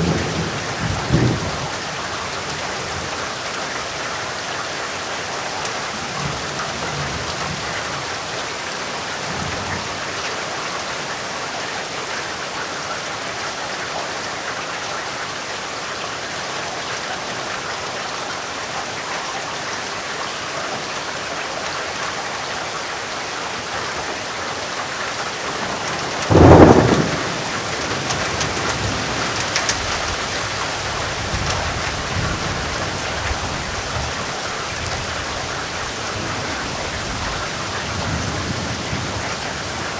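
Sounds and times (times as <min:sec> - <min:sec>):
thunderclap rumbling: 0:00.0 - 0:03.1, 0:25.5 - 0:35.5
steady rain falling: 0:00.0 - 0:39.9.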